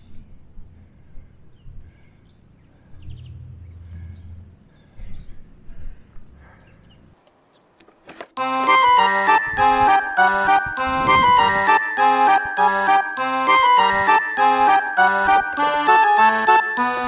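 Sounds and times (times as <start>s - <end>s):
faint bird chirps: 0.0s - 7.7s
background music: 8.4s - 17.0s.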